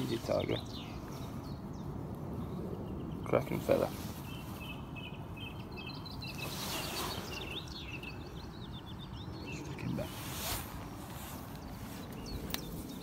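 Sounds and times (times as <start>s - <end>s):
small songbirds chirping: 0.0s - 13.0s
brief rustle: 6.3s - 7.5s, 10.0s - 13.0s.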